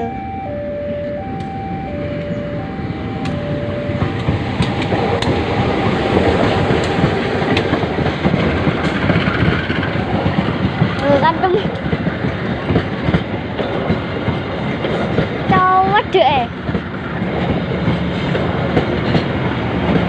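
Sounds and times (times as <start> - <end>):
two-tone electronic warning signal: 0.0 - 4.9
train rumbling: 0.0 - 20.0
wheels clicking over rail joints: 3.2 - 20.0.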